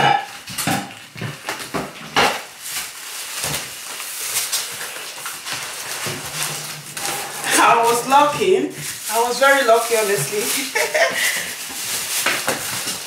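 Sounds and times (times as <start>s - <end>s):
packaging rustling: 0.4s - 13.0s.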